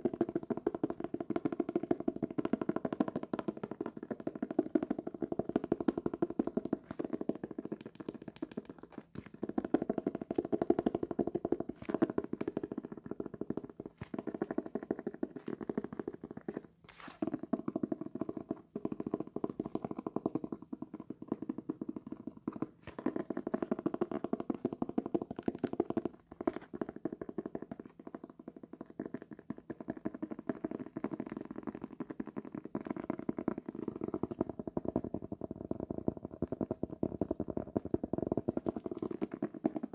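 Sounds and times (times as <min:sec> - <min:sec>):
comb scraped across paper: 0:16.8 - 0:17.3.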